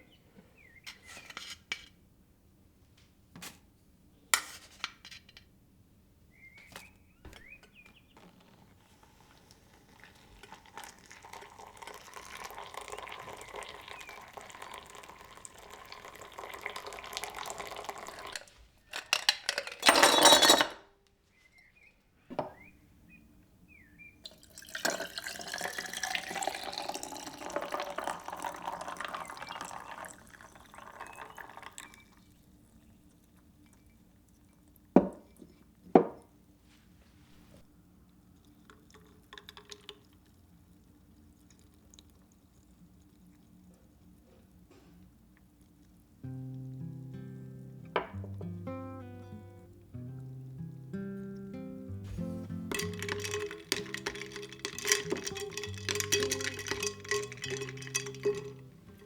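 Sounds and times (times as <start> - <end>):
tap water running into vessel: 9.4 - 18.4, 24.2 - 32.0, 52.1 - 59.0.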